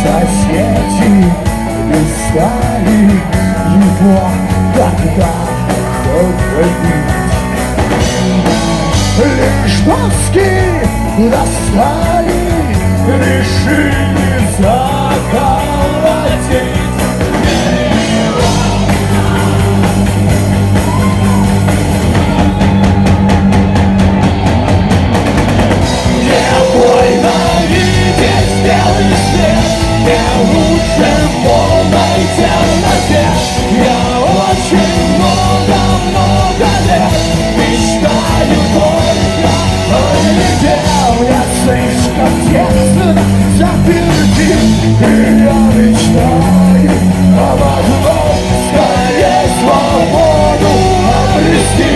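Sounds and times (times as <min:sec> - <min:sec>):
instrumental heavy rock music: 0:00.0 - 0:51.9.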